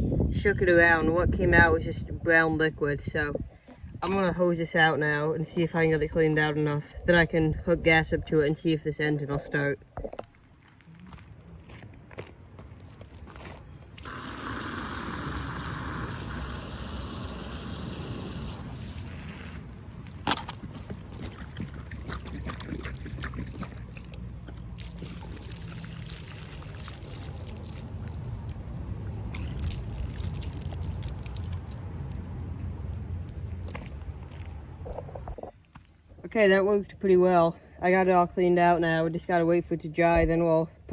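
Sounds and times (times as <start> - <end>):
garden hose spraying water: 14.0 - 19.8, 24.6 - 32.5
water sloshing and draining: 20.7 - 32.5.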